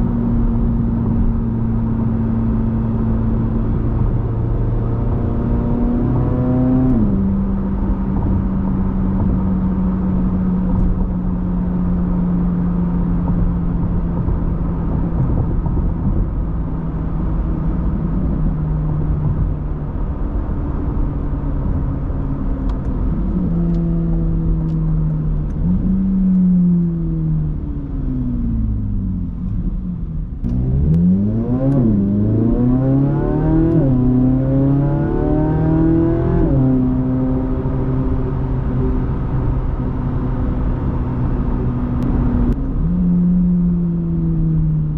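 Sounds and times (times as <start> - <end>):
sports car exhaust: 0.0 - 44.9
tyre and road noise: 0.0 - 44.9.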